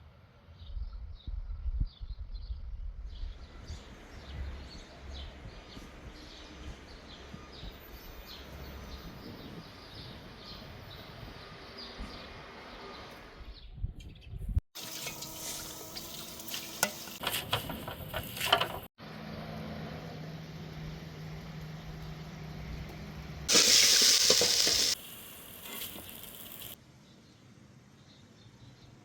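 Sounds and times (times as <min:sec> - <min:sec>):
frying sizzle: 0:14.8 - 0:17.2, 0:23.5 - 0:26.8
loud hiss: 0:23.5 - 0:26.8.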